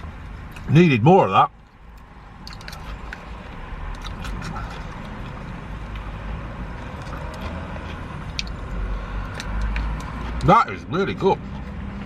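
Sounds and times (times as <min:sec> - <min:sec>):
person chewing: 0:00.0 - 0:00.7, 0:01.6 - 0:10.4.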